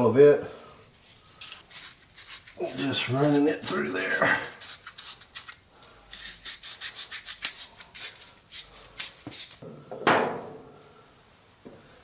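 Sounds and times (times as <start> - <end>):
sandpaper rasping in pulley: 1.4 - 9.6
metal clank ringing: 9.7 - 10.8.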